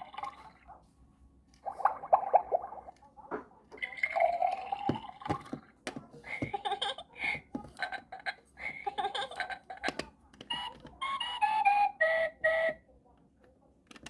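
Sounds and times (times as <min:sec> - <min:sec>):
toy recorded voice talking: 0:08.6 - 0:12.8.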